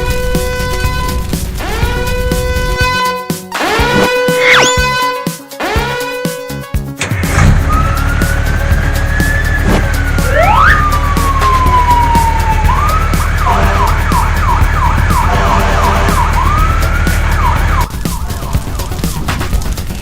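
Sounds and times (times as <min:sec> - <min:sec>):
backing music track: 0:00.0 - 0:20.0
cartoon siren wail: 0:03.6 - 0:05.1, 0:07.6 - 0:18.8.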